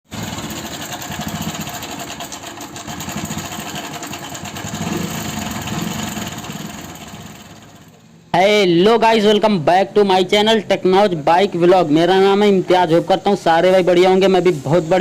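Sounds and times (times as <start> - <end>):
engine running with rattle: 0.0 - 8.2.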